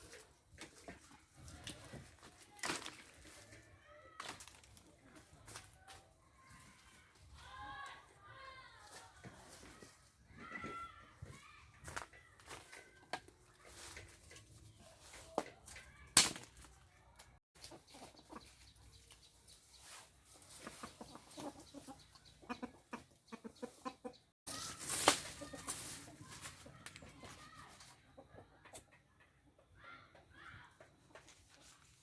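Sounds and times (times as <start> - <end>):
chickens clucking: 17.6 - 30.3.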